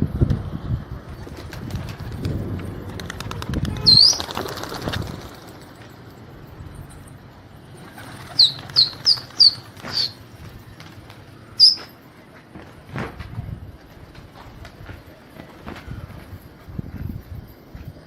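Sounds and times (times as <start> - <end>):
small bird chirping: 8.3 - 10.3.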